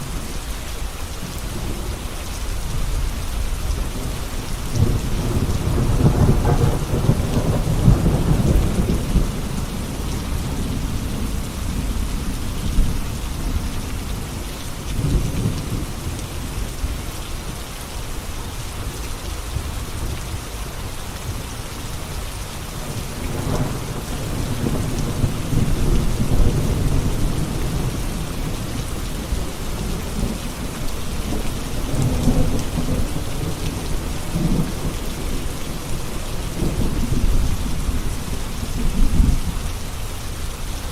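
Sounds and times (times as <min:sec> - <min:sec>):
heavy rain hissing: 0:00.0 - 0:40.9
rolling thunder: 0:02.7 - 0:14.4, 0:22.8 - 0:39.8.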